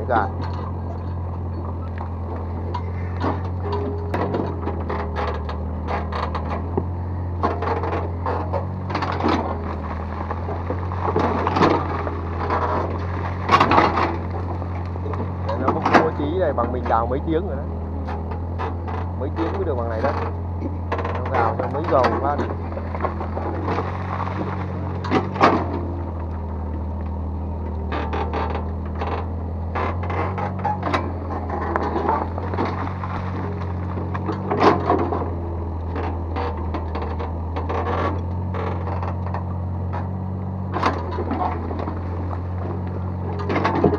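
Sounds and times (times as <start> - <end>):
diesel engine running: 0.0 - 43.9
metal clanks and scrapes: 0.2 - 17.4, 18.0 - 26.5, 27.8 - 43.9
bucket knocking and scraping soil: 21.2 - 26.1, 31.1 - 35.3.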